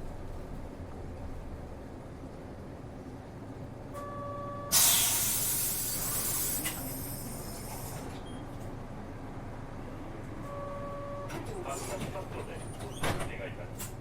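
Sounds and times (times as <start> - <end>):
low engine rumble: 0.0 - 3.9
compressed air hiss: 4.7 - 8.0.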